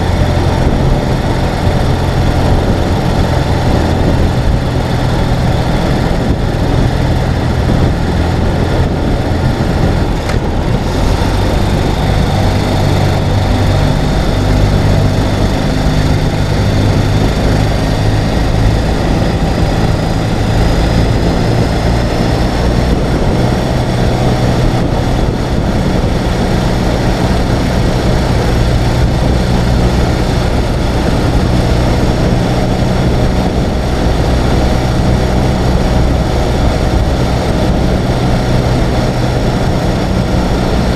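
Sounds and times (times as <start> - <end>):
motorcycle engine cruising: 0.0 - 40.9
wind noise: 0.0 - 40.9.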